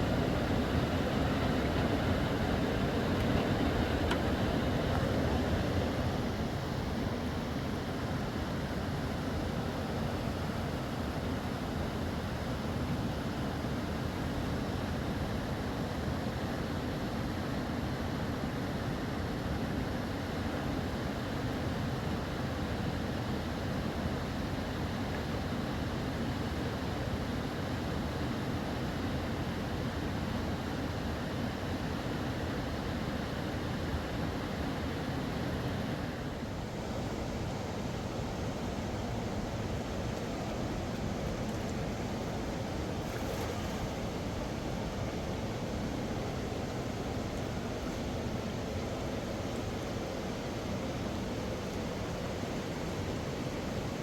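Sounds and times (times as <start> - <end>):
fast river rushing: 34.8 - 54.0.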